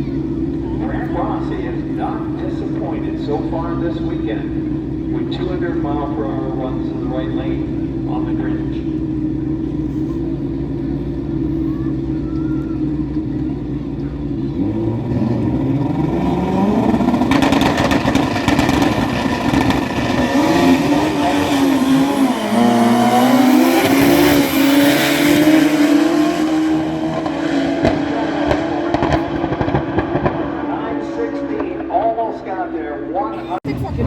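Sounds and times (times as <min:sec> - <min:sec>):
drag racing engine accelerating: 0:12.8 - 0:34.0.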